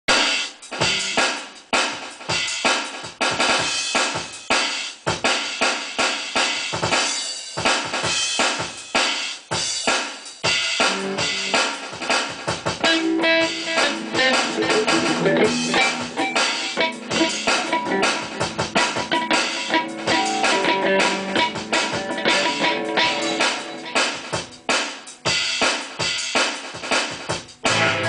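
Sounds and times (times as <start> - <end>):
drum kit played fast: 0.1 - 28.0
held pitched notes: 12.8 - 24.5, 27.6 - 28.0.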